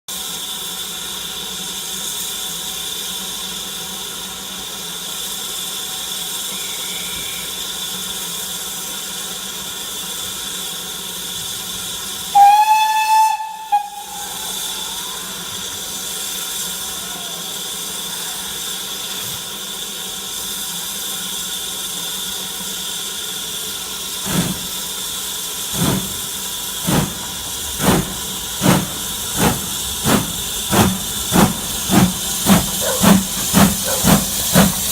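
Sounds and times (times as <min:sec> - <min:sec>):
steam hissing: 0:00.1 - 0:34.9
steam locomotive chuffing: 0:00.1 - 0:34.9
steam locomotive whistle: 0:06.1 - 0:08.2, 0:12.2 - 0:18.9.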